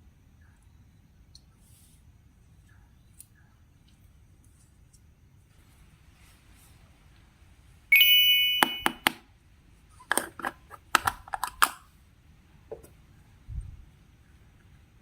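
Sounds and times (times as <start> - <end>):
bright ding: 7.9 - 9.2.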